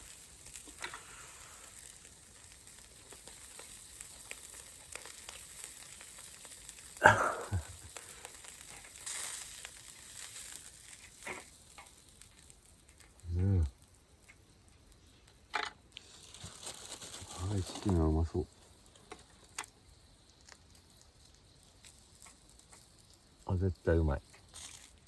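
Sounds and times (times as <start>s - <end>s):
chicken sizzling over charcoal: 0.0s - 25.0s.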